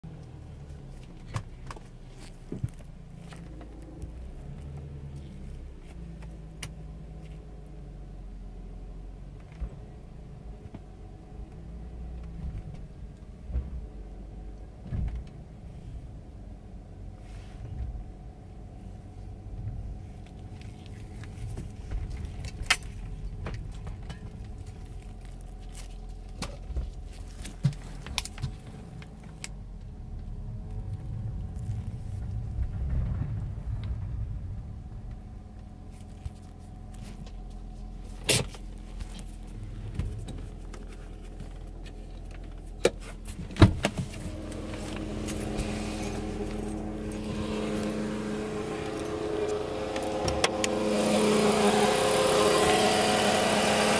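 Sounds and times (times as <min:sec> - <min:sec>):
low hum: 0:00.0 - 0:53.9.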